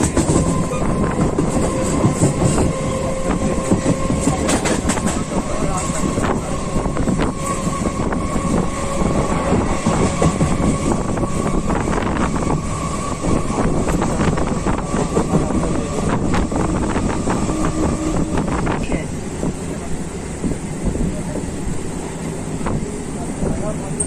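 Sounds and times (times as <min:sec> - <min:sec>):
train rumble: 0:00.0 - 0:24.0.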